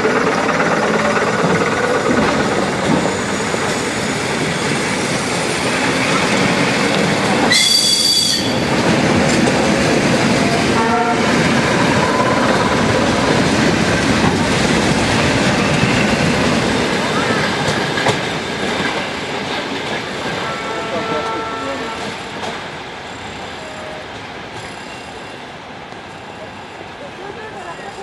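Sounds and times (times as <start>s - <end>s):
electric train passing: 0.0s - 28.0s
high-pitched shriek: 7.5s - 8.6s.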